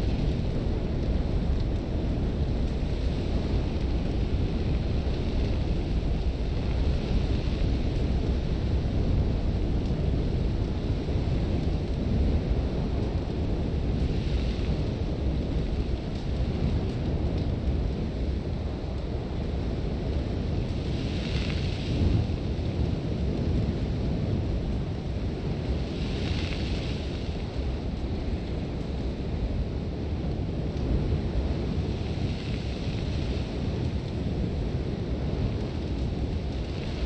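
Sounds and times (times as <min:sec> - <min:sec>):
wind buffeting a tent: 0:00.0 - 0:37.0
hiss of blown sand: 0:25.7 - 0:27.5.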